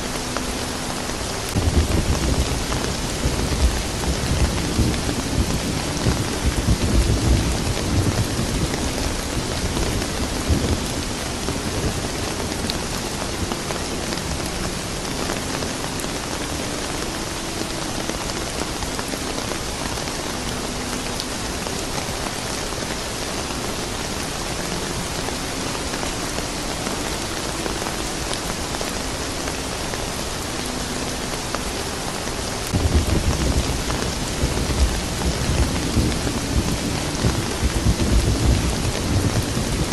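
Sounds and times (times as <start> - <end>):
steady rain falling: 0.0 - 39.9
thunder rumbling: 0.4 - 23.2, 32.6 - 39.9.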